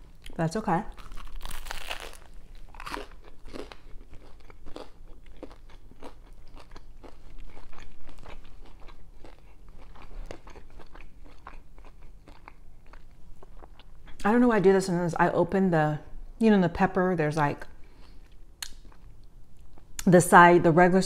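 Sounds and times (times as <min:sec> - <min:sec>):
crunchy chewing of toasted bread: 0:00.0 - 0:14.2.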